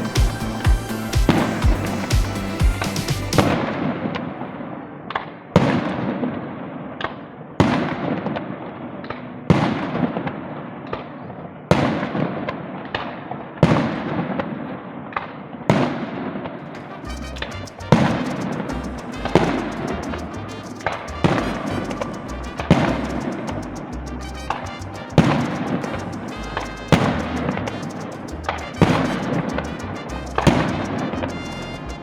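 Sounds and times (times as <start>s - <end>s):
fireworks popping and banging: 16.7s - 32.0s.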